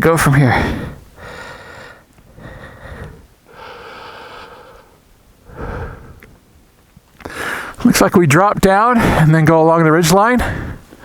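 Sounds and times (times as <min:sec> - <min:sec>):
man breathing heavily: 0:00.4 - 0:06.5, 0:07.2 - 0:07.8, 0:09.0 - 0:09.3, 0:10.4 - 0:11.0.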